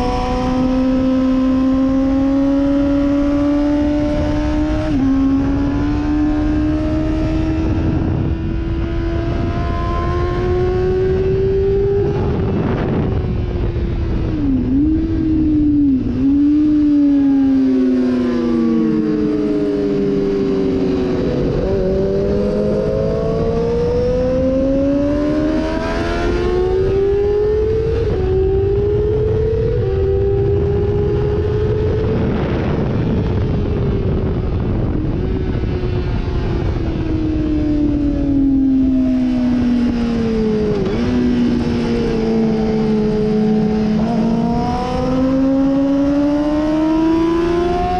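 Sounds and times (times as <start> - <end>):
sportbike engine revving: 39.2 - 47.9.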